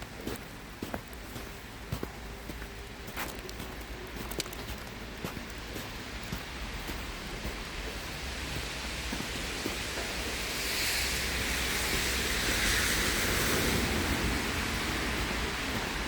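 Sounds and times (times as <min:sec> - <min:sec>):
vehicle tyres hissing on snow: 0:05.2 - 0:16.0.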